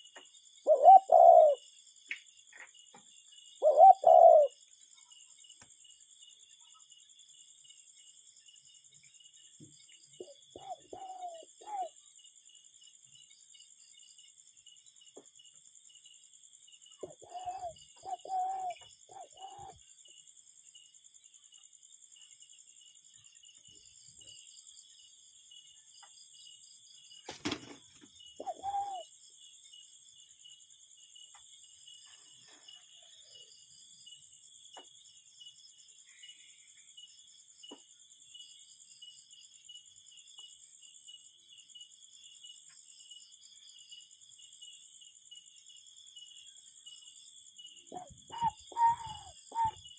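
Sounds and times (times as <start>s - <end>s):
cuckoo calling: 0.7s - 1.6s, 3.6s - 4.6s, 10.2s - 12.0s, 17.0s - 19.8s, 28.4s - 29.1s, 47.9s - 49.9s.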